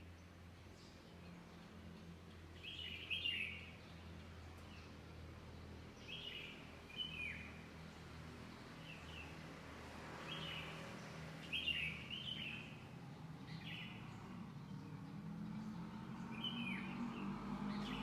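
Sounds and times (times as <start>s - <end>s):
small birds chirping: 11.4s - 18.0s.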